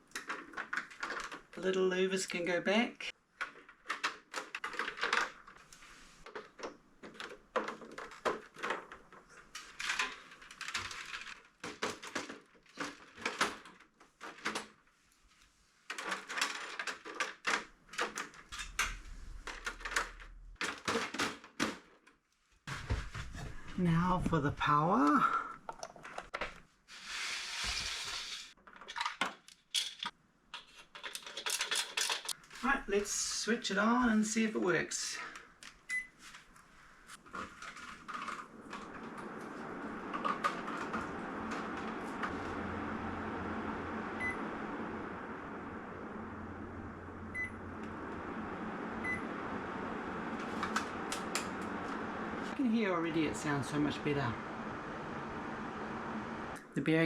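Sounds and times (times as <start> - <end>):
hiss: 26.9 - 28.5
air conditioner fan whoosh: 38.5 - 56.6.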